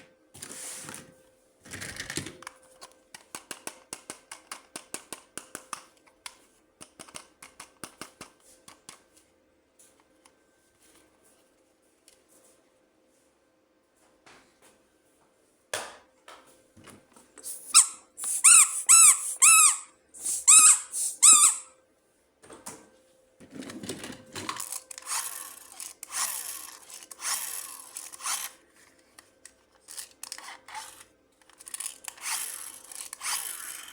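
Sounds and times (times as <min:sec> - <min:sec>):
squeaky toy chirps: 0:17.5 - 0:21.8.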